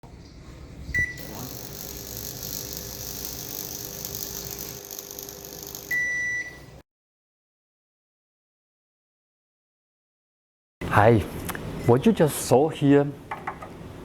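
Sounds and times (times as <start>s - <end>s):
microwave beeps: 1.0s - 6.8s
microwave humming: 1.0s - 6.8s
electrical fire crackling: 1.2s - 6.0s.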